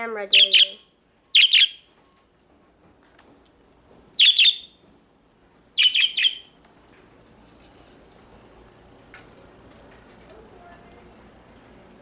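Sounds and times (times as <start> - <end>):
budgerigar chirping: 0.3 - 0.8, 1.4 - 1.8, 4.2 - 4.8, 5.8 - 6.5.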